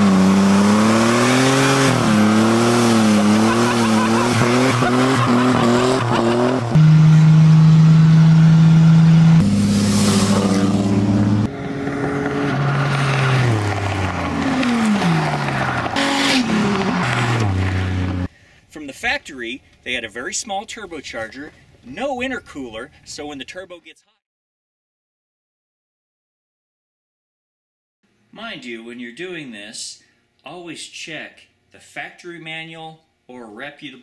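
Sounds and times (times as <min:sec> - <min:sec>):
tyre spinning in burnout: 0:00.0 - 0:11.4, 0:12.4 - 0:18.3
car engine revving: 0:00.0 - 0:18.3
cars passing: 0:00.0 - 0:18.3
engine at steady high pitch: 0:01.8 - 0:09.9.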